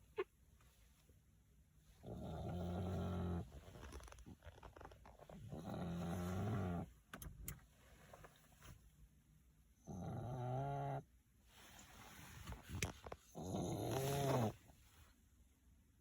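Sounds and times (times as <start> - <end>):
dog snoring: 2.0 - 3.7, 5.4 - 6.9, 9.8 - 11.1, 13.3 - 14.6.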